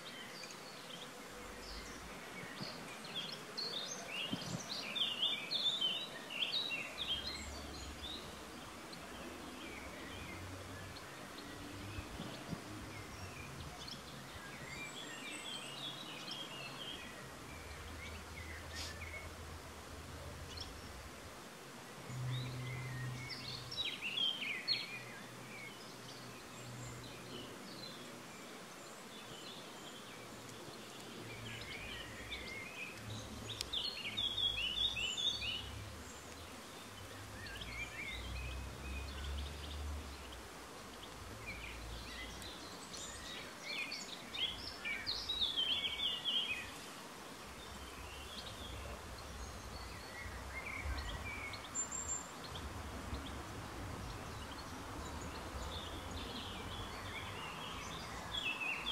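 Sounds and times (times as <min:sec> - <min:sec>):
background hiss: 0:00.0 - 0:58.9
songbird chirping: 0:00.0 - 0:58.9.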